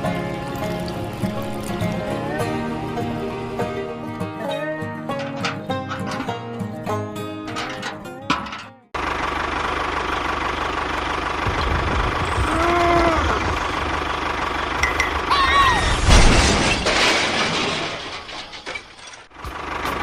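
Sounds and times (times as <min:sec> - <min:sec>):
small engine running: 0:09.0 - 0:15.3
person calling out: 0:12.4 - 0:13.5, 0:15.3 - 0:15.9.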